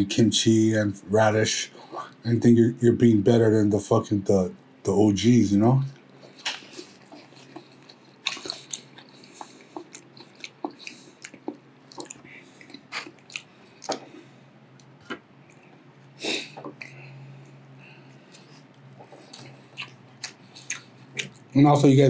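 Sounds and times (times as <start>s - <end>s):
chewing with wet mouth smacks: 5.9s - 21.6s.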